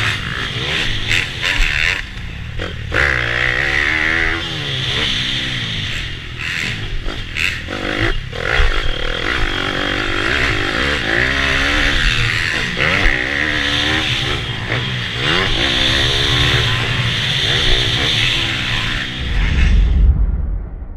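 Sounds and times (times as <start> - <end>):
pit bike engine revving: 0.0 - 19.9
wind rushing over camera: 18.6 - 20.9.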